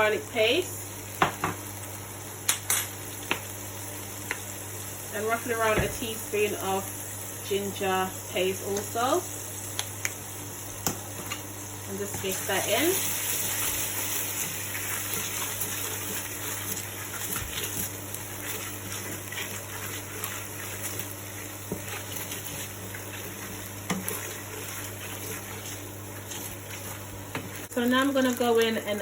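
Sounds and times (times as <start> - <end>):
paste sizzling in oil: 0.0 - 29.0
stirring knocks in pan: 23.8 - 25.5.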